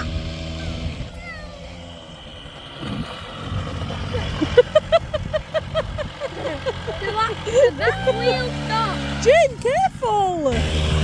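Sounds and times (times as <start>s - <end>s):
small motorbike engine running: 0.0s - 11.0s
high laughter-like voice sounds: 3.8s - 8.6s.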